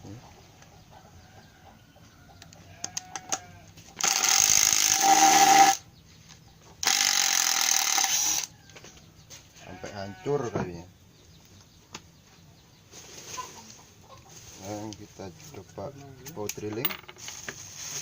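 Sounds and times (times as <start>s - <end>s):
impact driver hammering screw: 4.0s - 5.8s.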